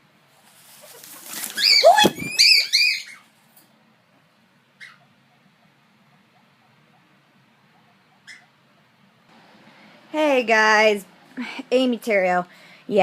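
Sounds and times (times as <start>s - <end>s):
rustling scuffle: 0.4s - 3.6s
guinea pig squeaking: 0.8s - 3.3s, 4.8s - 7.1s, 7.7s - 8.9s.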